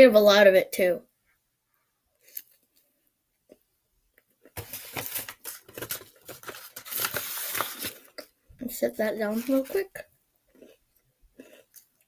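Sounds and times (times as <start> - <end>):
crunching and crackling of food: 9.2 - 12.0.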